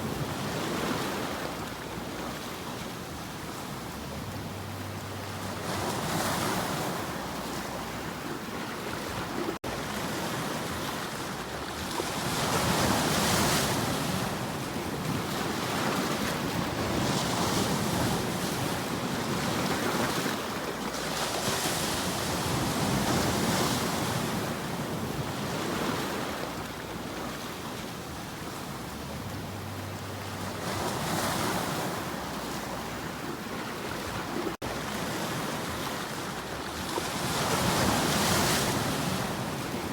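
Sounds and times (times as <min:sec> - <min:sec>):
ocean waves washing ashore: 0:00.0 - 0:39.9
wind: 0:00.0 - 0:39.9.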